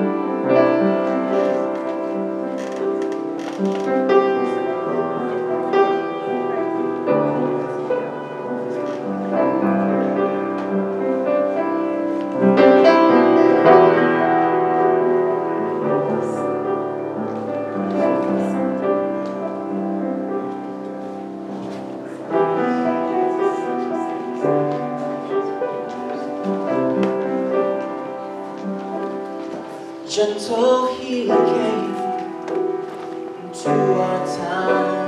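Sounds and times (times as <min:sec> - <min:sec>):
piano playing slow chords: 0:00.0 - 0:35.0.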